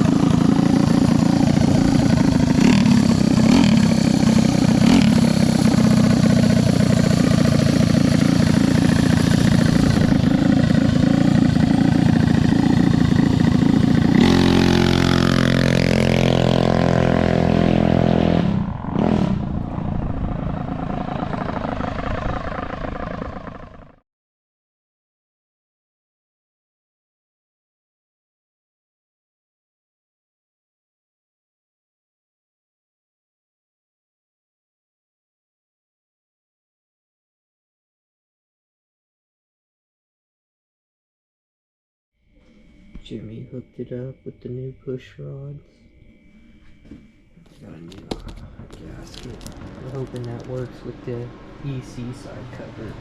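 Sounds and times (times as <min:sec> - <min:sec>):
minibike engine running hard: 0:00.0 - 0:24.0, 0:46.4 - 0:53.0.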